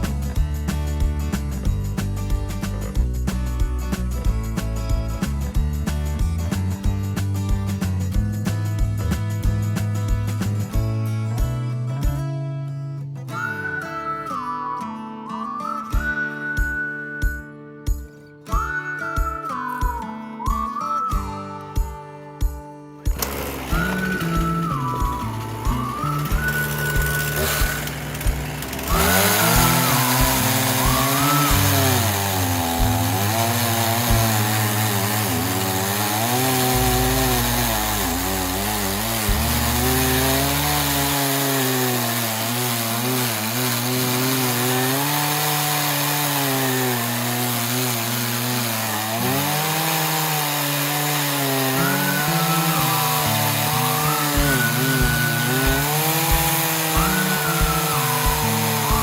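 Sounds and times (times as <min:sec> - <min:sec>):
chainsaw cutting wood: 0:00.0 - 0:10.8, 0:23.0 - 0:59.0.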